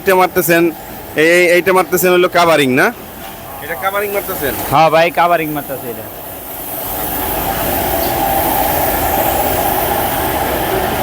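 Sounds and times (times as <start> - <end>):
paint spray gun hissing: 3.6 - 10.8.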